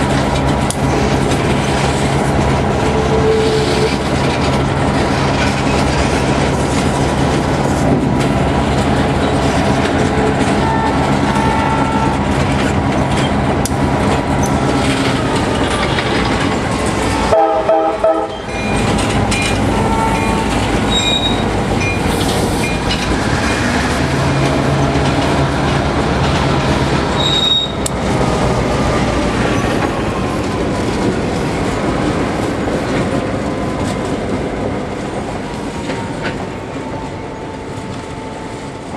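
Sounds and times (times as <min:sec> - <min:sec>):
freight train rolling past: 0:00.0 - 0:38.9
wheels clacking over rail joints: 0:00.0 - 0:38.9
train horn blast: 0:10.2 - 0:12.3, 0:17.2 - 0:18.5, 0:19.7 - 0:21.4
train wheels squealing: 0:20.0 - 0:23.7, 0:27.1 - 0:27.9.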